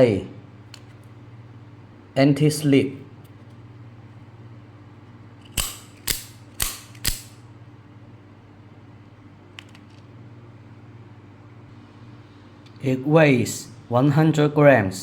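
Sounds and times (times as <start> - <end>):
knife blade metallic snaps: 5.5 - 7.4.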